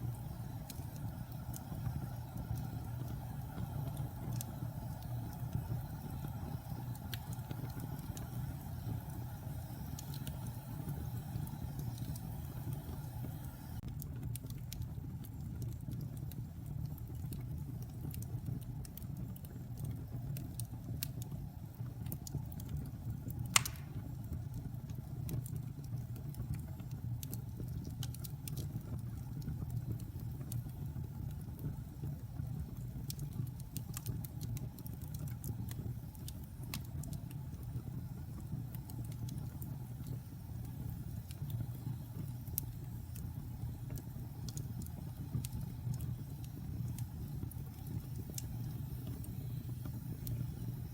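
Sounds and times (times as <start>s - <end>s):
fire crackling: 0.0s - 50.9s
wood fire burning: 0.0s - 50.9s
sharp pop from fire: 23.5s - 24.2s.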